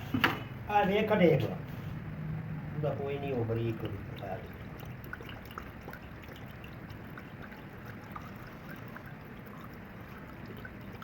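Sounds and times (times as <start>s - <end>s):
faint low hum: 0.7s - 11.0s
water pouring: 2.7s - 11.0s
small water splashes: 3.2s - 11.0s.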